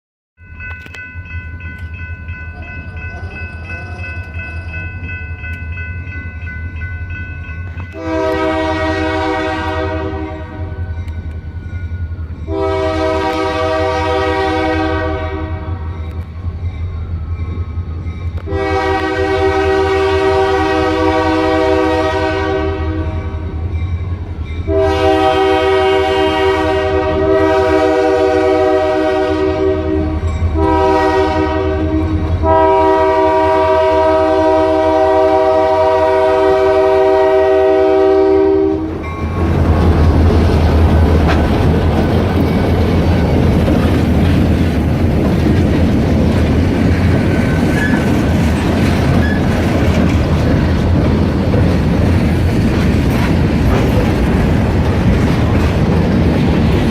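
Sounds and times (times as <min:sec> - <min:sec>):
train air horn: 0:08.0 - 0:10.9, 0:12.5 - 0:15.9, 0:18.4 - 0:23.5, 0:24.7 - 0:39.0
wheels clattering over rail joints: 0:39.4 - 0:56.9.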